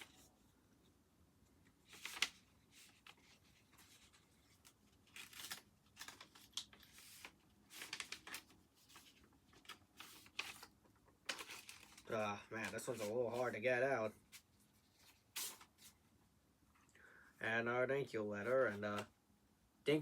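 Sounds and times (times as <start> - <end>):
paper rustling and scraping: 1.7 - 13.6, 14.2 - 16.0, 18.4 - 19.1.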